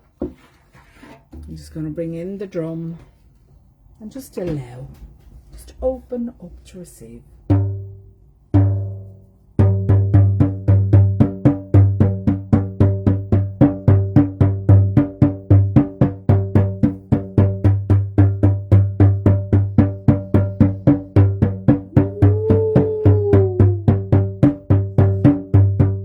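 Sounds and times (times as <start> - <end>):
drum beating: 7.5 - 26.0.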